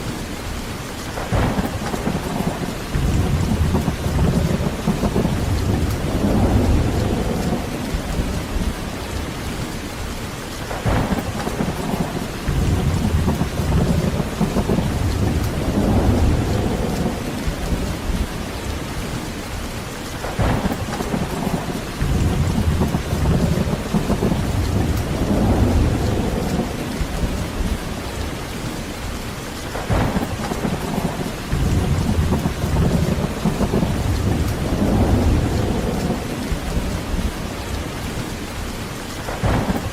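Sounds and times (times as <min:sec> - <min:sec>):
heavy rain falling: 0:00.0 - 0:39.9
sharp thunder claps: 0:01.2 - 0:08.8, 0:10.7 - 0:18.3, 0:20.2 - 0:27.9, 0:29.7 - 0:37.8, 0:39.2 - 0:39.9
rolling thunder: 0:01.2 - 0:09.7, 0:10.7 - 0:19.3, 0:20.2 - 0:28.8, 0:29.7 - 0:38.3, 0:39.2 - 0:39.9.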